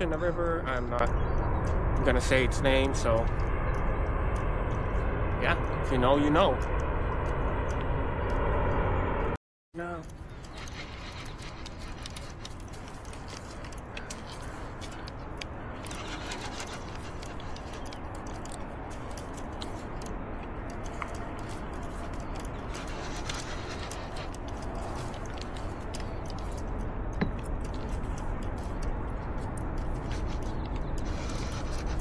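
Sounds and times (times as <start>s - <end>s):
light clicks and ticks: 9.9s - 32.0s.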